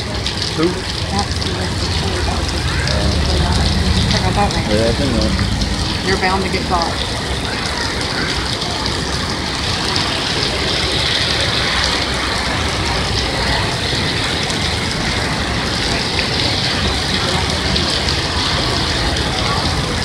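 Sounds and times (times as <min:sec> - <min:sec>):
heavy rain on a street: 0:00.0 - 0:20.0
tyres hissing on wet road: 0:00.0 - 0:20.0.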